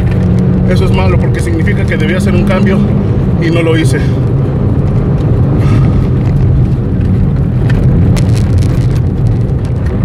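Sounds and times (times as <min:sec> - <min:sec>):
tyre and rain noise: 0:00.0 - 0:10.0.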